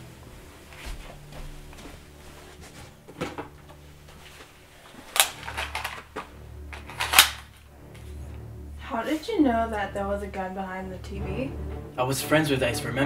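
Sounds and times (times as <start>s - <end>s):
handgun clicks and knocks: 5.1s - 7.6s.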